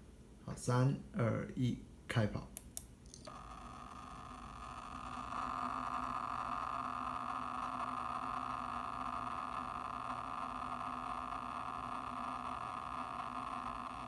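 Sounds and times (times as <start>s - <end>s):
faint hum: 0.0s - 14.0s
hard drive rushing noise: 3.4s - 14.0s.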